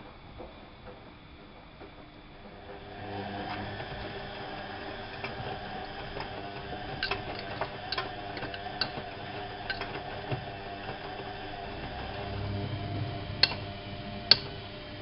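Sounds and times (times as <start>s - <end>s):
washing machine motor hum: 0.0s - 15.0s
sharp clicks and ticks: 9.7s - 10.0s.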